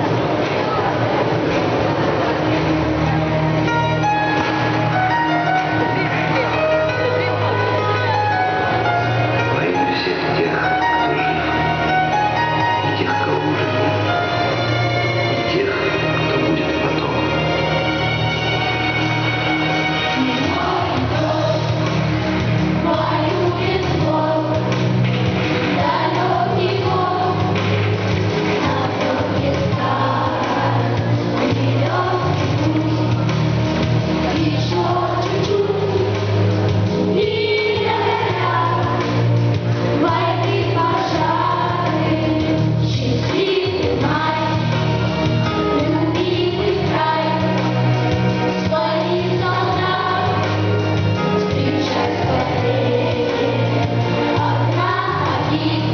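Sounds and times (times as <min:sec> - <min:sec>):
instrumental backing: 0:00.0 - 0:55.9
voices singing: 0:18.9 - 0:33.6, 0:34.2 - 0:45.1, 0:45.7 - 0:55.9.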